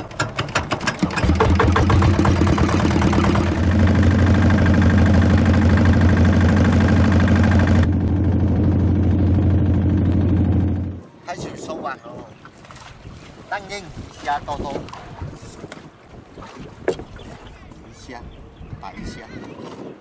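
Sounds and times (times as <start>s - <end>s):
boat engine starting and running: 0.0s - 11.0s.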